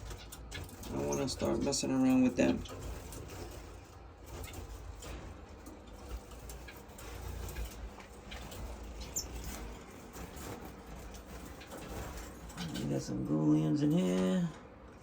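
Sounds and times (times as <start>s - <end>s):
wing flutters: 0.0s - 14.5s
clicks from cages: 0.0s - 15.0s
low steady hum: 0.0s - 15.0s.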